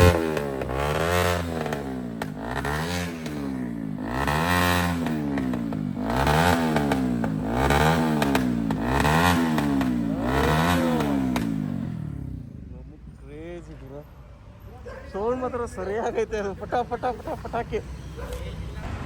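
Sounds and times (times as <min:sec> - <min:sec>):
motorbike engine revving: 0:00.0 - 0:12.7
exhaust pops and crackle: 0:01.5 - 0:02.5.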